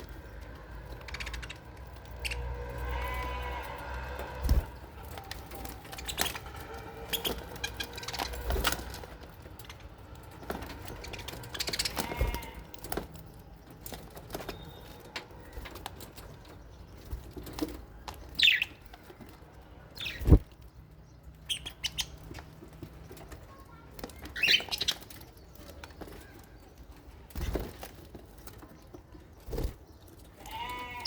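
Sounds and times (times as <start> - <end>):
birds chirping: 0.0 - 31.0
birds wings flapping: 2.1 - 9.6, 27.2 - 28.6.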